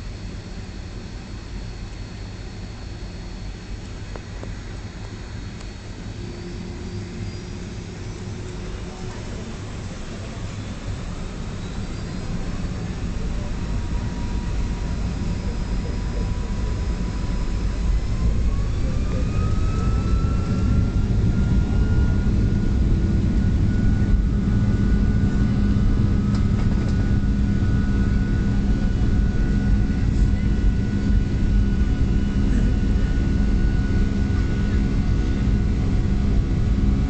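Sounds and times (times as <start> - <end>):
jet engine rumble from cabin: 0.0 - 37.0
jet engine whine: 0.0 - 37.0.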